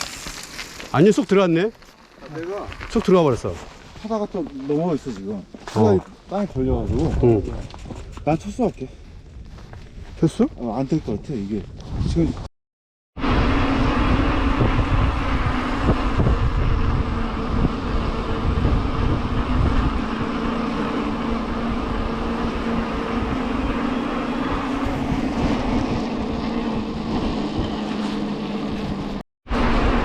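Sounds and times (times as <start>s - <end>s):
wind buffeting microphone: 6.3s - 12.5s, 13.2s - 29.2s
steady hum: 13.2s - 30.0s.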